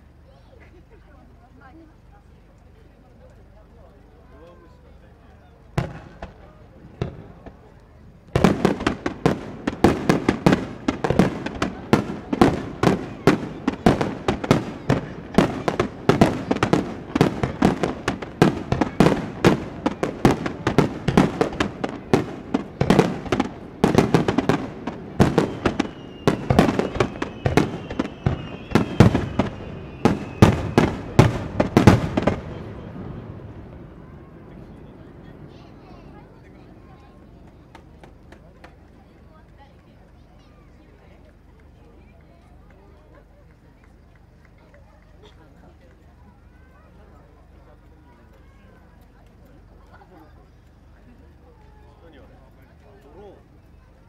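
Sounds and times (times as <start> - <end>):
firework shells bursting: 5.7 - 34.1.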